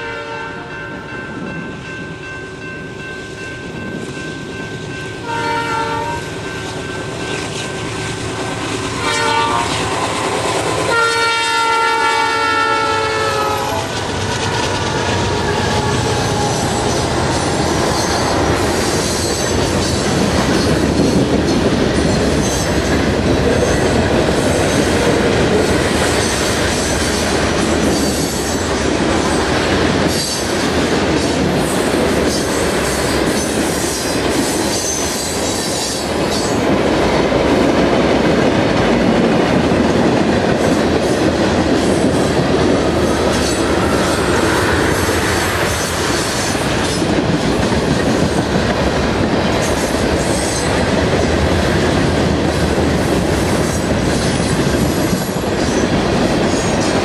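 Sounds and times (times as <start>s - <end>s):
locomotive air horn blasts: 0.0s - 0.8s, 5.2s - 6.4s, 8.9s - 10.0s, 10.7s - 14.0s
train wheel squeal: 13.7s - 25.0s, 25.6s - 36.7s, 43.0s - 47.2s, 49.6s - 50.8s, 53.6s - 57.0s
freight cars clickety-clack: 13.8s - 57.0s.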